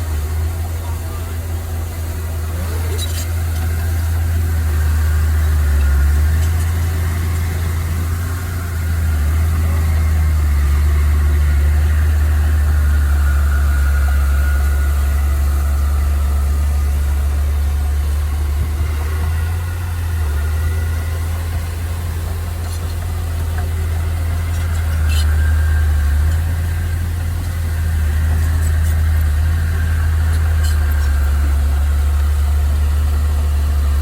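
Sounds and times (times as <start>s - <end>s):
heavy machine engine droning: 0.0s - 34.0s.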